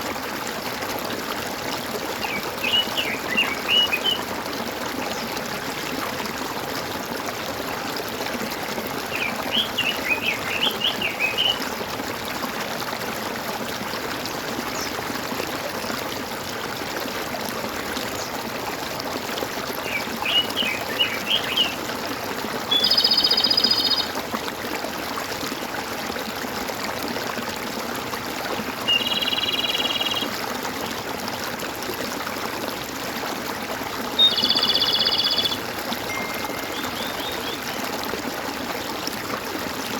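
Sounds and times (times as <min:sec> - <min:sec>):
running water gurgling: 0:00.0 - 0:39.9
bird warbling chirps: 0:34.2 - 0:37.8.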